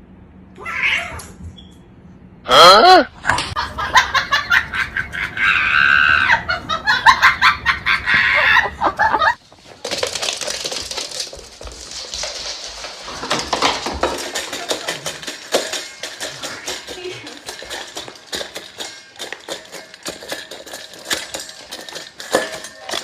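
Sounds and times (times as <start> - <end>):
small hard objects clattering: 9.4 - 23.0.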